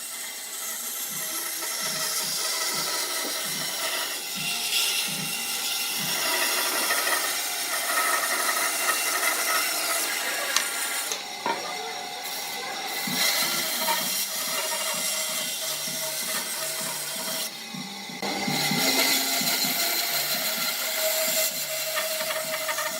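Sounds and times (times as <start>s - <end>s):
power tool rasping wood: 0.0s - 22.9s.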